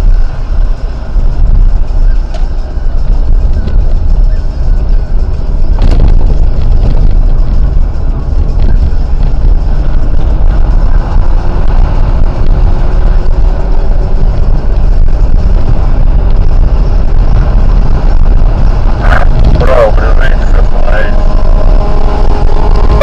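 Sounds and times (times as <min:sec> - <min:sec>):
car engine rumble: 0:00.0 - 0:23.0
road noise: 0:00.0 - 0:23.0.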